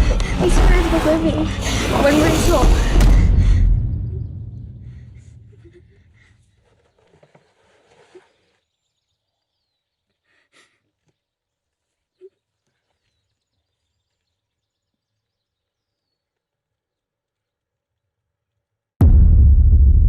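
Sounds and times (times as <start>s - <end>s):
rushing noise: 0.0s - 5.5s.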